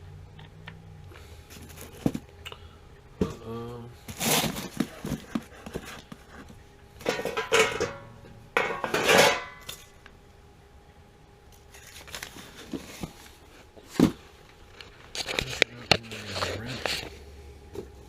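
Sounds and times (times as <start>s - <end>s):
metal tools clattering and clinking: 7.0s - 9.9s.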